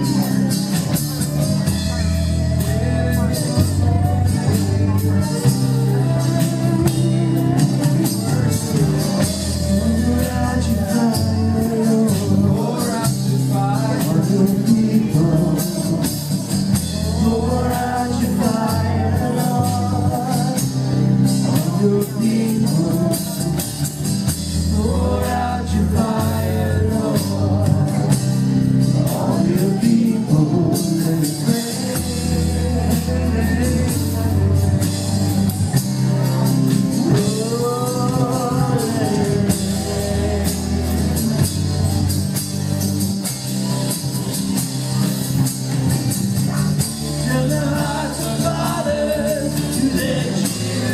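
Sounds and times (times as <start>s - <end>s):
person singing: 0.0s - 35.8s, 36.8s - 42.0s, 46.4s - 50.9s
drum kit: 0.0s - 50.9s
guitar: 0.0s - 50.9s
keyboard: 0.0s - 50.9s
low bass notes: 0.0s - 50.9s.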